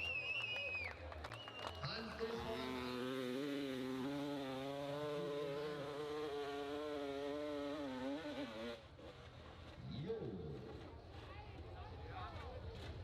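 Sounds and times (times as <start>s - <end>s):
dirt motorcycle engine revving: 1.9s - 10.9s.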